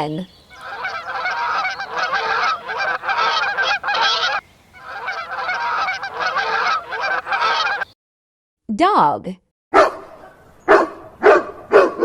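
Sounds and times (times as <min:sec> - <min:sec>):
swans honking: 0:00.5 - 0:08.0.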